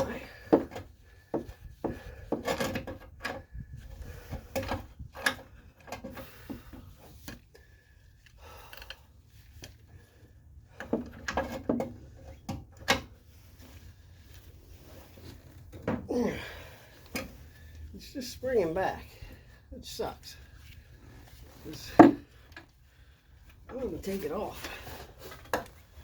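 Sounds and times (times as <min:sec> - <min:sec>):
hand tools clicking and clunking: 0:00.0 - 0:07.4, 0:10.7 - 0:13.2, 0:15.5 - 0:17.6, 0:21.6 - 0:22.8, 0:23.6 - 0:26.0.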